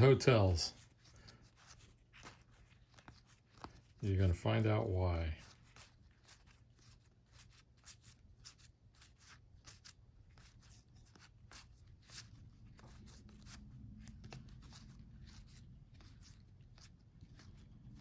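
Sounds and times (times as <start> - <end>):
cards clicking and rustling: 0.0 - 18.0
low steady hum: 10.1 - 18.0.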